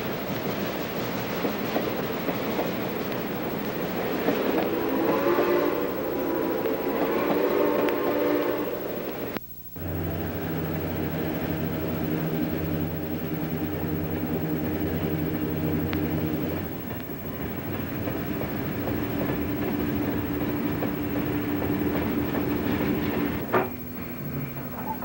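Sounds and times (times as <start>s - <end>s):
train engine hum: 0.0s - 25.0s
train wheels rumbling: 0.0s - 25.0s
faint clicking: 0.4s - 4.9s, 5.8s - 8.1s, 8.9s - 25.0s.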